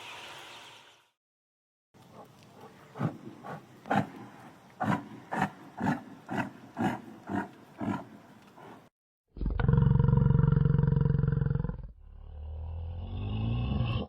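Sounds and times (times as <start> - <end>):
loud steady animal call: 2.1 - 8.9.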